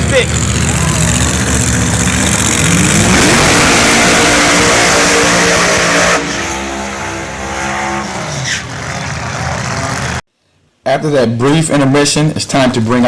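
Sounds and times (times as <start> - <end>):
race car engine revving: 0.0 - 10.2
tire-spin noise: 0.0 - 10.2.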